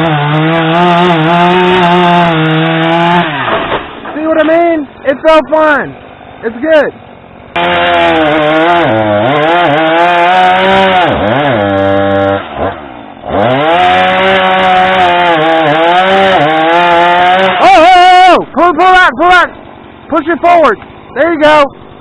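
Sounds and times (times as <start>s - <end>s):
chainsaw revving cutting wood: 0.0s - 4.6s, 7.6s - 18.0s.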